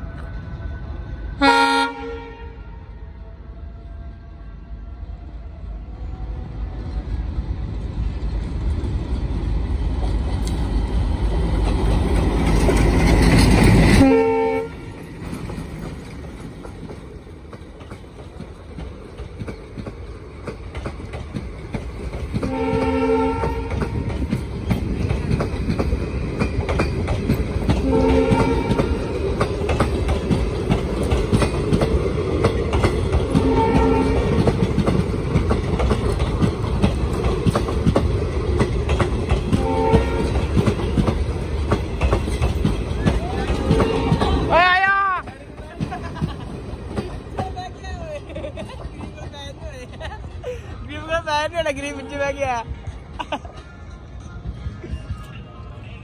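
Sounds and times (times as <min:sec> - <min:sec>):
diesel locomotive engine rumble: 0:00.0 - 0:56.0
train coaches rumbling: 0:00.0 - 0:56.0
train wheel clatter: 0:08.0 - 0:50.3.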